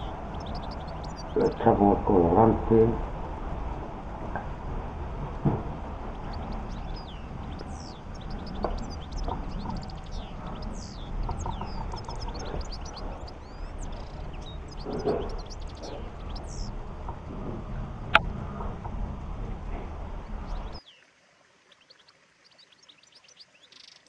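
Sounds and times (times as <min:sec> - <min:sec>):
steady low hum: 0:00.0 - 0:20.8
small birds chirping: 0:00.0 - 0:24.0
faint knocks: 0:04.1 - 0:20.8.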